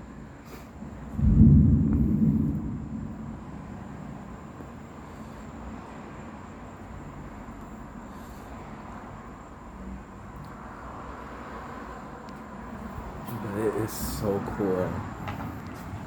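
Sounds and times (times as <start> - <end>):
thunder rumbling: 1.1 - 5.0.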